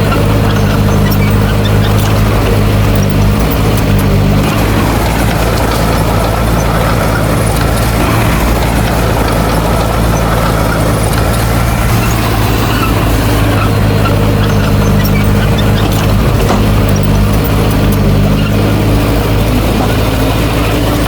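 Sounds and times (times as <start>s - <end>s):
heavy machinery diesel engine running: 0.0s - 21.0s.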